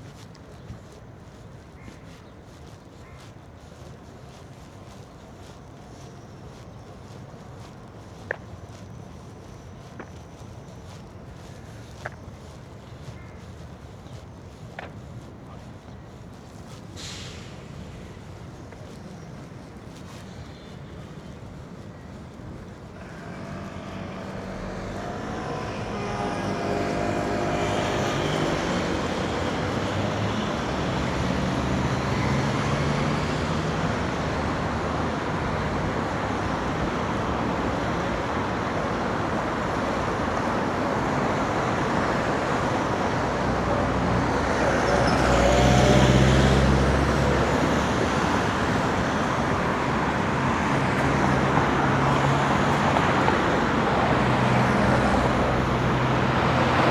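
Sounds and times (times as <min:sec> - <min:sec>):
cars going by: 0:22.9 - 0:56.9
vehicle passing close: 0:23.0 - 0:33.3, 0:41.4 - 0:56.9.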